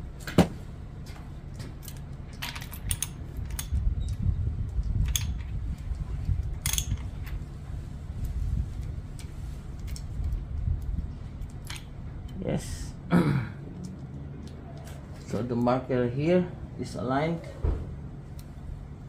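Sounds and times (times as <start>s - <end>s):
low rumble: 0.0s - 19.0s
sharp metal clicks: 1.8s - 7.2s.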